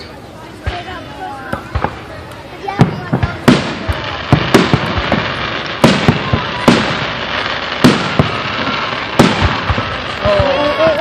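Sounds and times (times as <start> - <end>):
steady background noise: 0.0 - 11.0
fireworks bangs: 0.4 - 11.0.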